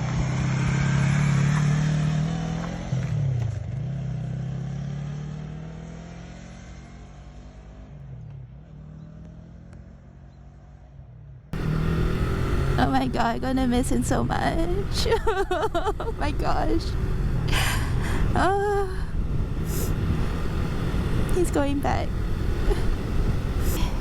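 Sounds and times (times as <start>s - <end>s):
vehicle engine pulling away: 0.0s - 7.8s, 11.6s - 24.0s.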